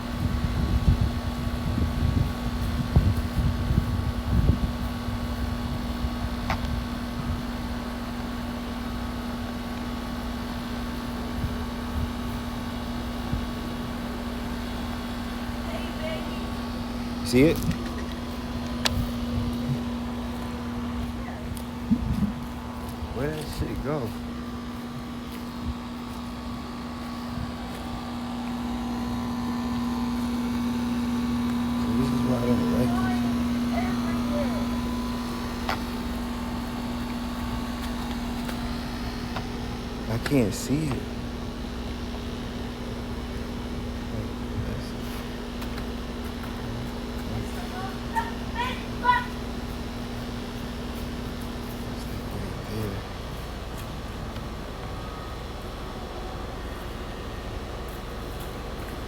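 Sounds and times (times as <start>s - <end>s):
wind rumbling on microphone: 0.0s - 7.7s, 18.6s - 28.3s
low mechanical hum: 0.0s - 59.0s.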